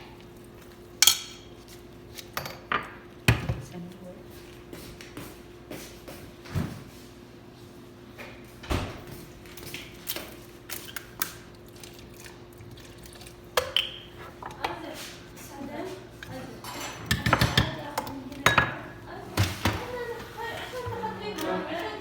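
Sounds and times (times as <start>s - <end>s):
kitchen utensils and dishes clinking: 13.6s - 22.0s.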